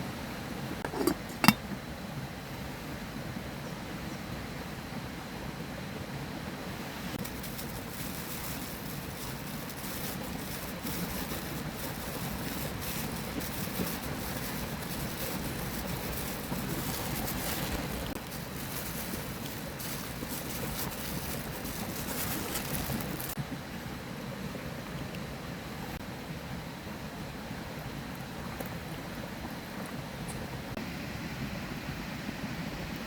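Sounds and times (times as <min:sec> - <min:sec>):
faint crackles: 0:07.2 - 0:23.4.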